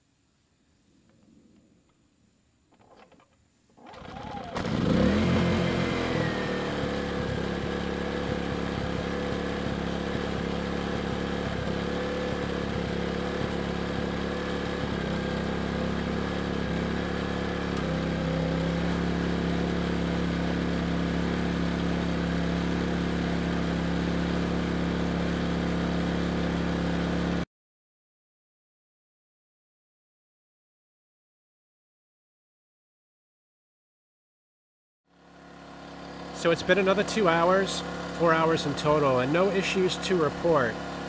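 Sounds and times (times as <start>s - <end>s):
generator engine running: 3.8s - 27.4s, 35.1s - 41.0s.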